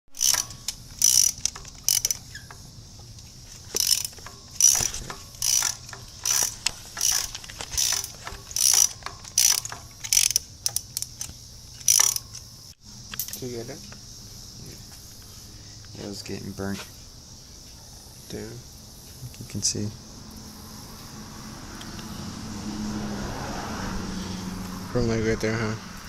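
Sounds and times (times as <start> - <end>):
socket ratchet wrench clicking: 0.1 - 13.4.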